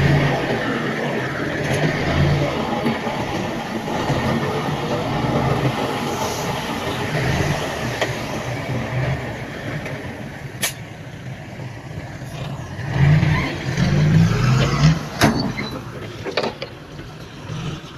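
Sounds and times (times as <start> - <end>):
heavy machinery rumbling: 0.0 - 17.9
sharp click: 10.6 - 10.8.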